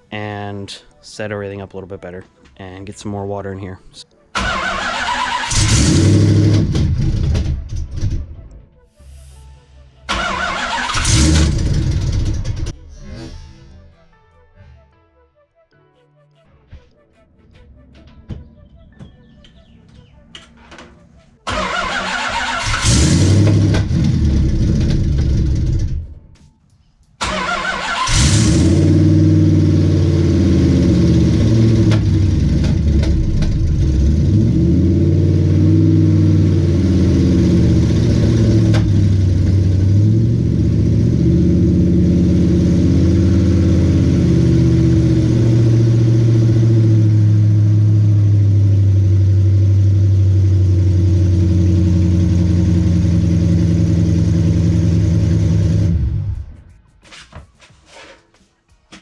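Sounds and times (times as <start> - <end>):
car engine running loudly: 10.1 - 12.8, 22.7 - 26.0, 28.1 - 56.3.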